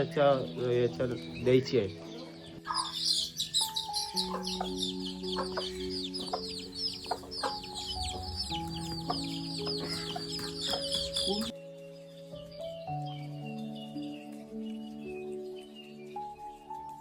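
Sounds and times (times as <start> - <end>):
background music with held notes: 0.0 - 17.0
chicks peeping: 0.4 - 11.6.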